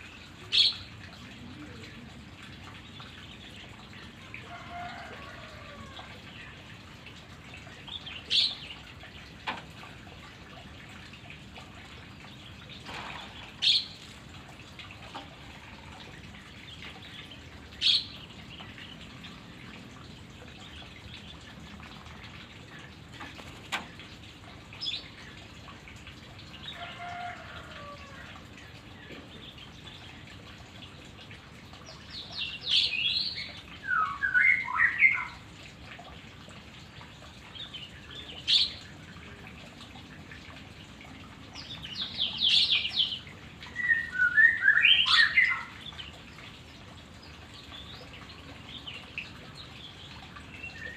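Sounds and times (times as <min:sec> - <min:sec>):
bird singing chirps and whistles: 0:32.8 - 0:35.4, 0:43.7 - 0:45.8.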